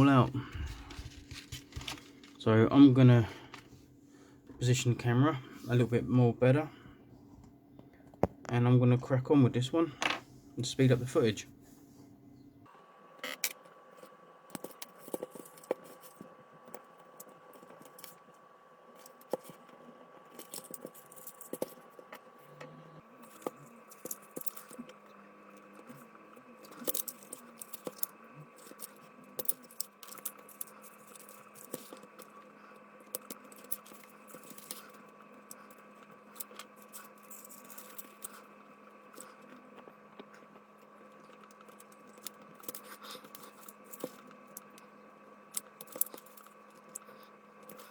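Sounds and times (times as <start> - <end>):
faint steady hum: 0.0 - 47.9
tweezers clicking and scratching: 18.9 - 22.6, 23.2 - 44.9, 45.5 - 47.9.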